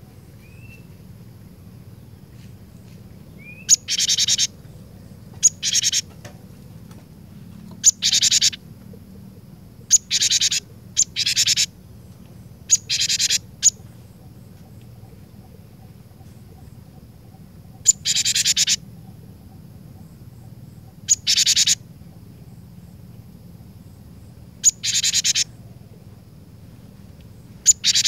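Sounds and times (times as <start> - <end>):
bird calling with rattling trill: 3.3 - 6.9, 7.8 - 8.6, 9.8 - 22.8, 24.6 - 25.9, 27.5 - 28.0.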